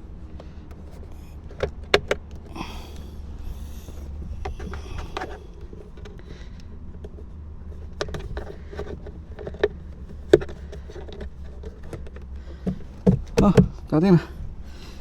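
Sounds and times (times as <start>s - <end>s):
low steady hum: 0.0s - 15.0s
plastic trim clicks and knocks: 7.8s - 13.9s.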